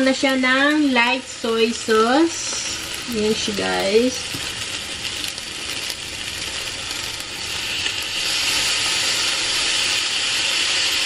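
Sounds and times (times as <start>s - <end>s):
rice sizzling in a frying pan: 0.0s - 11.0s.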